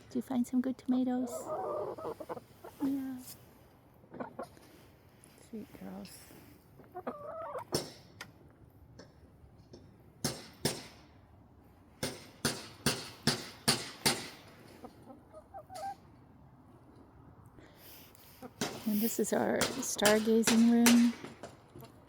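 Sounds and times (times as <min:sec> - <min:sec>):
hens clucking: 0:00.9 - 0:03.3, 0:03.9 - 0:05.0, 0:06.6 - 0:07.9, 0:14.5 - 0:16.2, 0:18.3 - 0:20.2.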